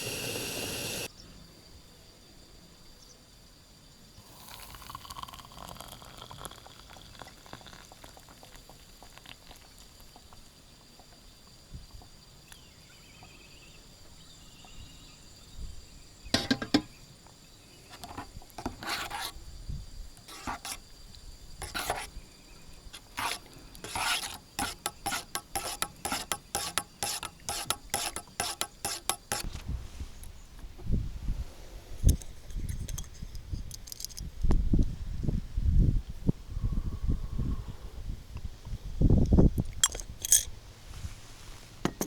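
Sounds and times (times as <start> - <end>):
short rasping scrapes: 17.9 - 19.4, 20.2 - 20.8, 21.6 - 22.1, 23.0 - 29.5.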